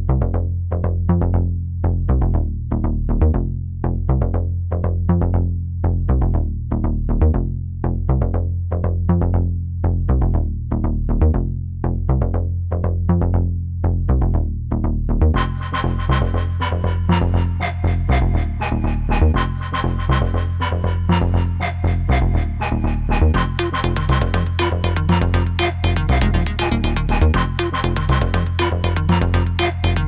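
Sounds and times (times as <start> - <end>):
tech house music: 15.4 - 30.0.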